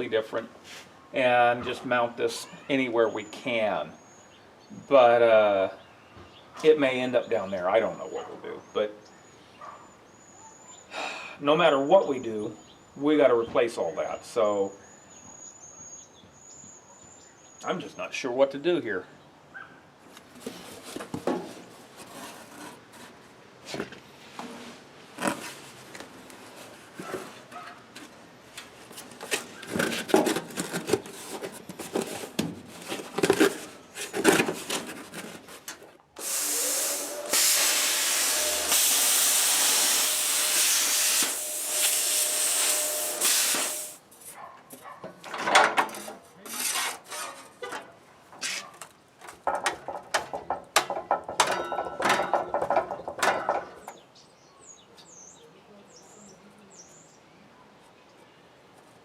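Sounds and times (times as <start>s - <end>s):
electric shop tool whining: 36.2s - 44.0s
metal tools clanking and scraping: 45.3s - 48.7s, 51.3s - 53.8s.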